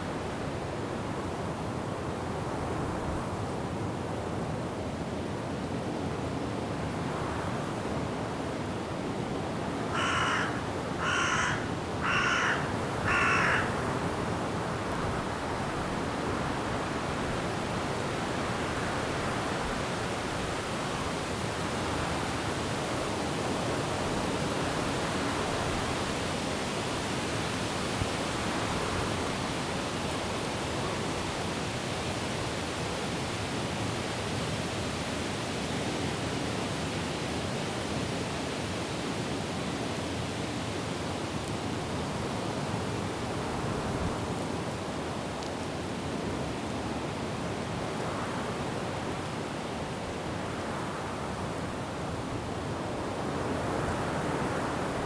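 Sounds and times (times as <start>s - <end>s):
wind and rain through trees: 0.0s - 55.0s
bird calling loudly: 10.0s - 13.7s.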